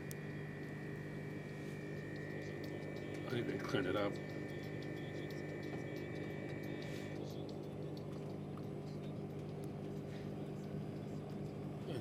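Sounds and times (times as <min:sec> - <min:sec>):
high two-tone whine: 0:00.0 - 0:08.0.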